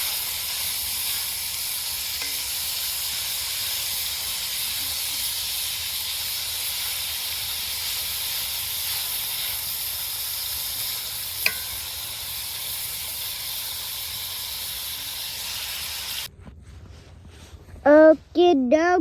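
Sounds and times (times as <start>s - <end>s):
food sizzling in a pan: 0.0s - 16.3s
sharp clink: 11.4s - 11.9s.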